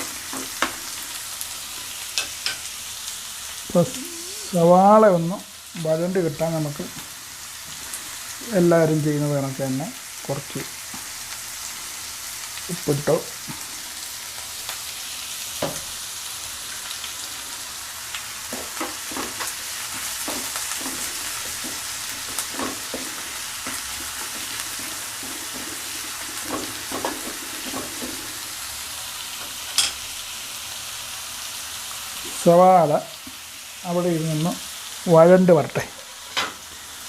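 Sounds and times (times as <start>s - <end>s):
onions sizzling in a pan: 0.0s - 37.0s
spoon stirring and scraping: 18.4s - 28.4s.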